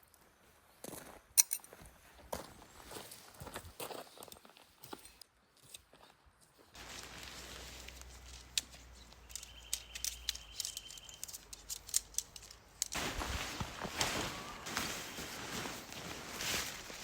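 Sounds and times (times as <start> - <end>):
camping gear clicking and clinking: 0.9 - 1.8, 2.9 - 17.0
rustling: 6.7 - 17.0.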